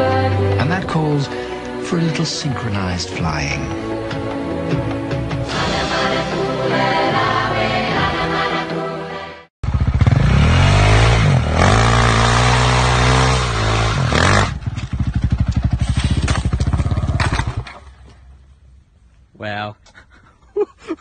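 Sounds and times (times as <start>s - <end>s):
motorcycle engine revving: 9.6s - 18.4s.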